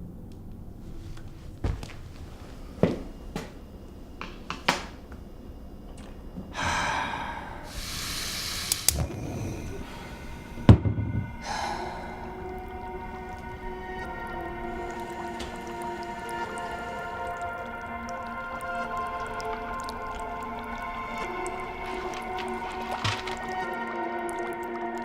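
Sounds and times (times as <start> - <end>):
soft sustained music chord: 6.5 - 25.0
rushing hiss: 6.6 - 10.8
heavy thud: 10.6 - 11.4.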